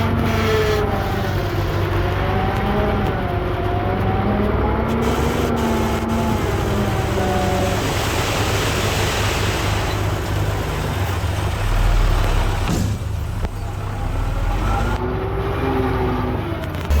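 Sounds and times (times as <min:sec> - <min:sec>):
low diesel engine drone: 0:00.0 - 0:17.0
broad rushing noise: 0:04.9 - 0:13.4.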